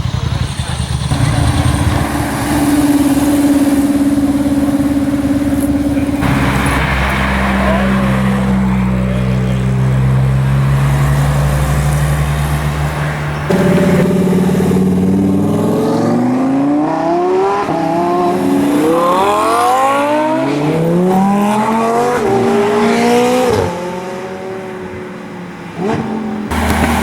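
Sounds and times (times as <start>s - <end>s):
engine idling nearby: 0.0s - 15.9s, 26.5s - 27.0s
car engine accelerating: 0.0s - 27.0s.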